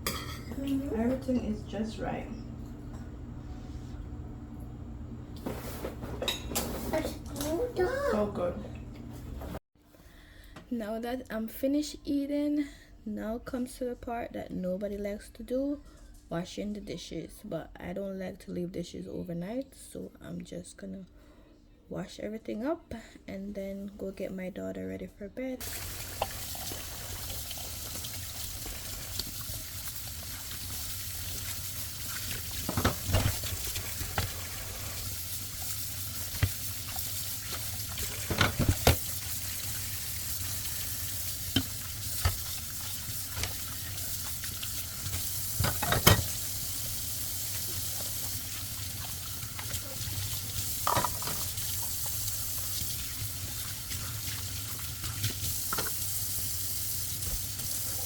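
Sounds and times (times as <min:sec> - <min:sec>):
dishes and utensils clinking: 0:00.0 - 0:01.6, 0:06.0 - 0:07.2, 0:45.1 - 0:46.4, 0:50.8 - 0:51.6
running water hissing: 0:25.6 - 0:58.0.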